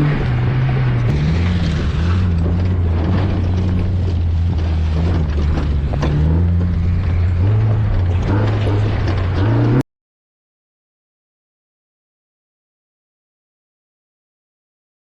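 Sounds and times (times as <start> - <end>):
vehicle engine droning: 0.0 - 9.8.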